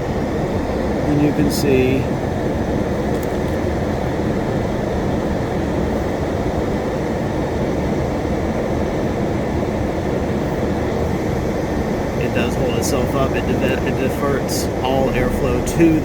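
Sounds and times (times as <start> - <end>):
car blower fan rushing air: 8.7 - 16.0.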